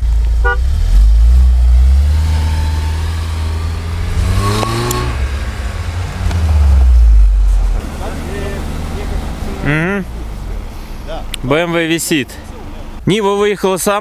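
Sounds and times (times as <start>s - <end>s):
engines running hard under load: 0.0s - 12.8s.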